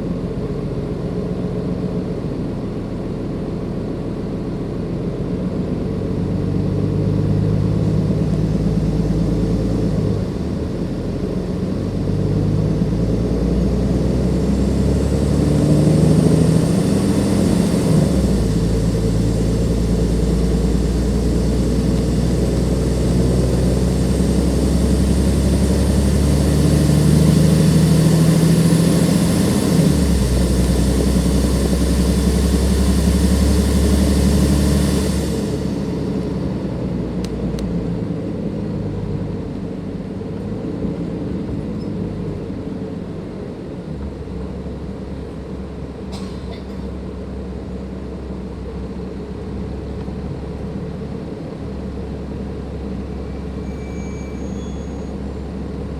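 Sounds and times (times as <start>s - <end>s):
bus diesel engine under load: 0.0s - 55.9s
turbocharger whistle: 53.6s - 55.4s.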